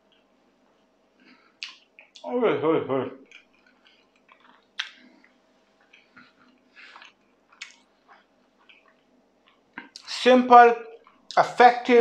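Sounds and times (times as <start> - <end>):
person chewing food: 0.0 - 2.2, 3.2 - 10.1, 10.9 - 11.4
sharp mouth clicks: 1.6 - 2.3, 3.3 - 7.9.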